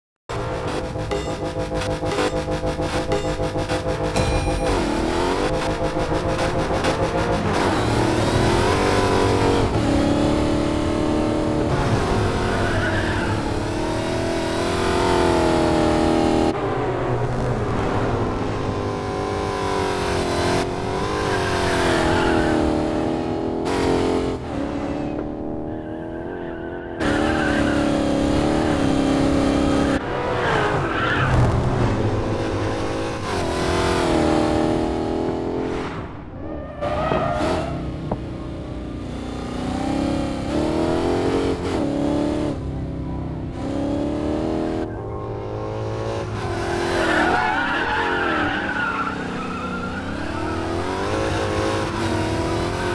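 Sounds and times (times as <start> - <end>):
car engine revving: 0.3 - 52.9.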